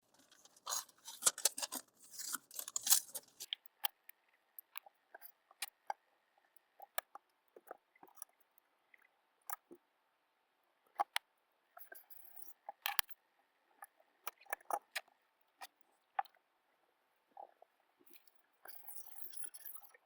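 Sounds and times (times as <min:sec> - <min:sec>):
knife rasping: 0:00.1 - 0:03.5.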